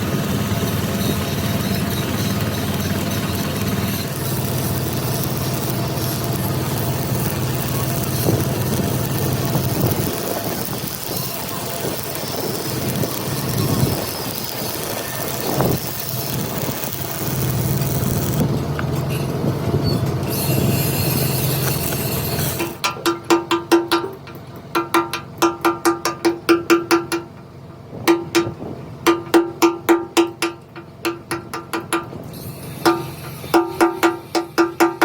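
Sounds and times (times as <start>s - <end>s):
engine running: 0.0s - 35.0s
sharp metallic knocks: 21.6s - 27.4s, 28.0s - 35.0s.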